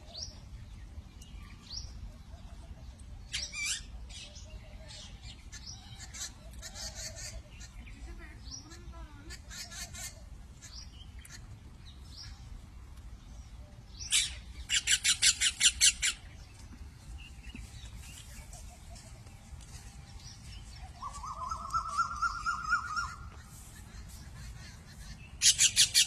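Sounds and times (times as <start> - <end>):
peafowl calling: 20.9 - 26.0.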